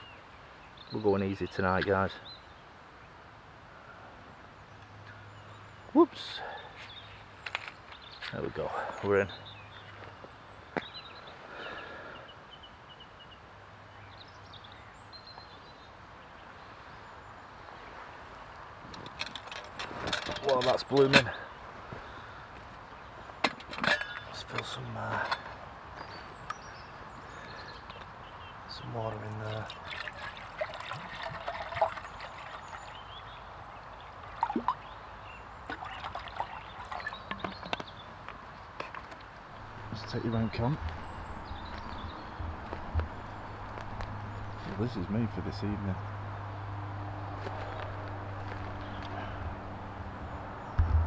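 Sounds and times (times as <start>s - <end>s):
small birds chirping: 0.0s - 3.2s, 4.5s - 51.0s
faint outdoor background noise: 0.0s - 51.0s
water pouring into a pot: 29.6s - 33.0s.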